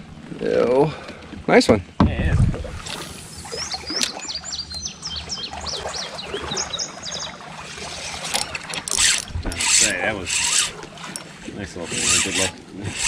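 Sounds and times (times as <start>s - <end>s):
songbird singing: 2.9s - 10.0s.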